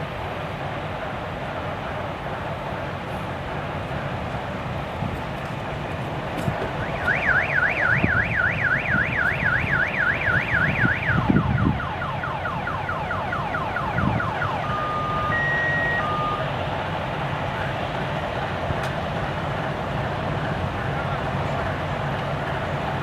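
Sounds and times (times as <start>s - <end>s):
freight train rumbling past: 0.0s - 23.0s
car alarm cycling tones: 6.8s - 16.5s.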